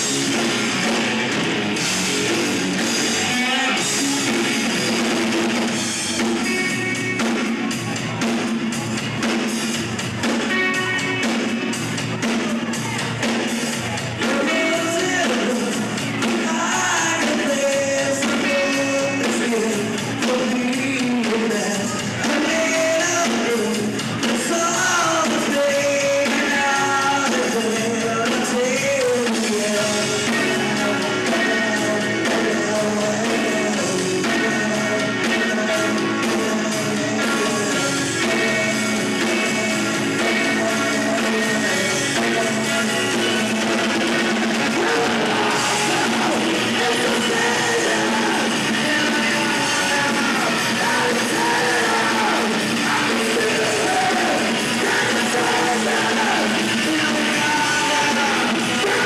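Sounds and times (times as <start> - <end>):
rock band playing live: 0.0 - 59.0
person singing: 2.3 - 8.2, 10.2 - 59.0.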